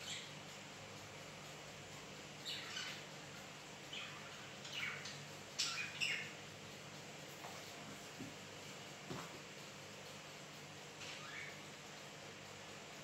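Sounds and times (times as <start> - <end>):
bird chirping: 0.0 - 0.4, 2.4 - 3.2, 3.9 - 6.4, 11.0 - 11.6.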